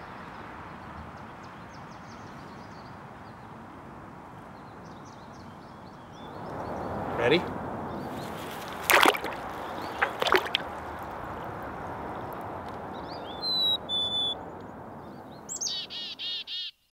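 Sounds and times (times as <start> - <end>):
birds calling: 4.8 - 16.8.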